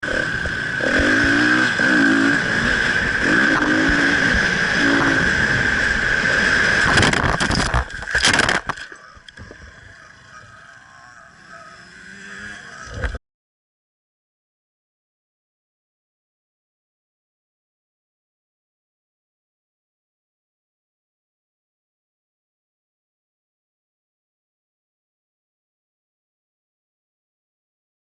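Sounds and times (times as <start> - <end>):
motorcycle engine revving: 0.0 - 13.2
motorcycle crashing: 0.2 - 9.8
wind rush: 2.4 - 8.8.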